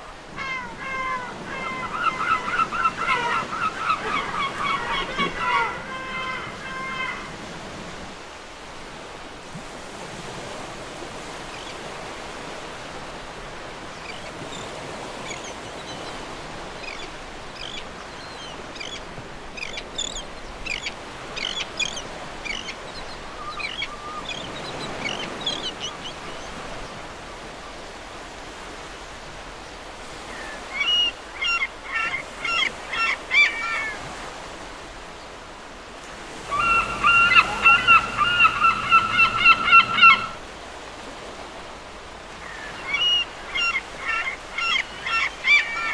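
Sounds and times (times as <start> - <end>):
seagulls calling: 0.0 - 8.1, 20.7 - 26.8, 30.3 - 34.3, 36.4 - 40.4, 42.4 - 45.9
surf washing: 0.0 - 45.9.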